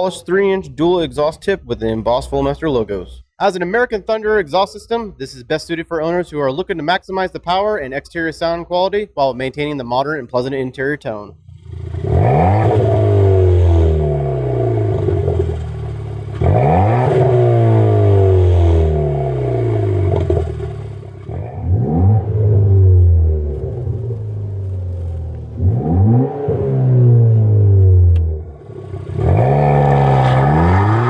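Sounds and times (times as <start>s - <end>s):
car engine revving: 11.4s - 31.0s.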